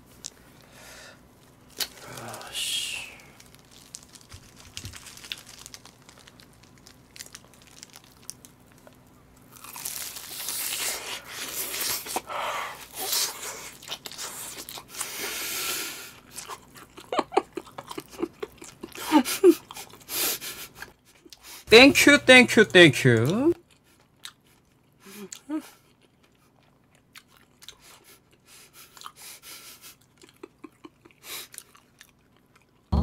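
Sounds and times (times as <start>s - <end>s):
crunching fried chicken: 1.5s - 21.6s, 23.2s - 32.9s
wet chewing and smacking: 3.4s - 15.2s, 16.1s - 20.1s, 23.2s - 32.9s.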